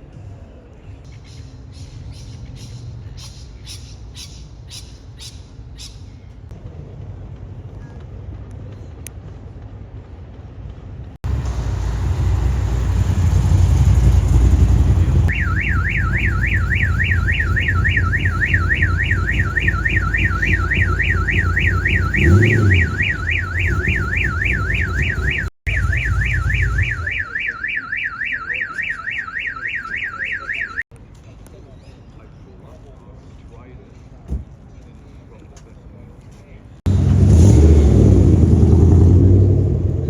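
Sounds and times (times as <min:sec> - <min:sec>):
car engine running: 0:11.2 - 0:27.1
car alarm siren warbling: 0:15.3 - 0:30.8.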